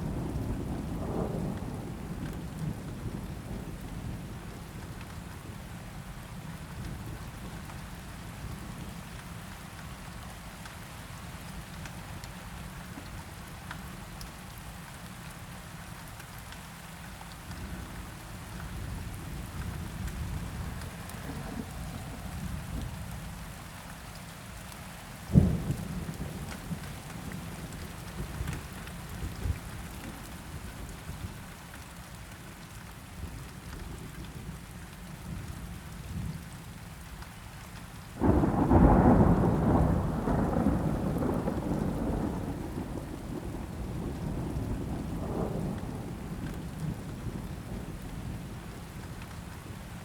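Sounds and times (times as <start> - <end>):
steady rain falling: 0.0 - 50.0
long thunder roll: 38.2 - 48.5.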